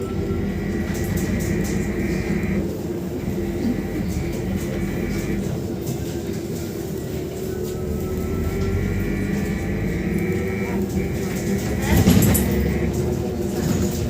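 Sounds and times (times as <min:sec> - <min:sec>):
electric motor whine: 0:00.0 - 0:05.6, 0:07.9 - 0:13.2
road rumble: 0:00.0 - 0:14.0.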